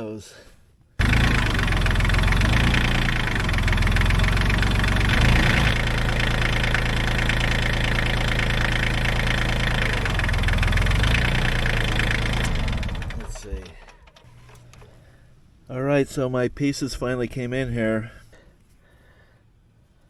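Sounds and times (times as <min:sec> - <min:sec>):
diesel engine idling: 0:01.0 - 0:15.5.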